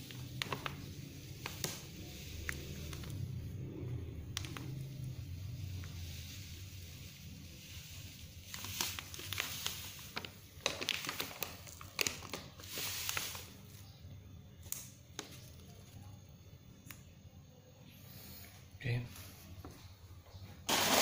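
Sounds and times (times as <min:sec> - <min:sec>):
plastic packet crinkling: 0:00.0 - 0:03.2, 0:08.4 - 0:13.8
powder being poured: 0:00.0 - 0:13.9, 0:20.7 - 0:21.0.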